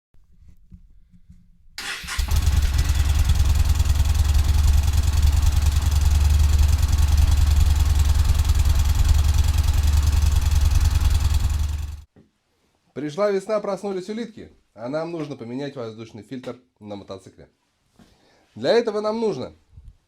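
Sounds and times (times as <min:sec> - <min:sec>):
motorcycle engine idling: 0:02.0 - 0:12.1.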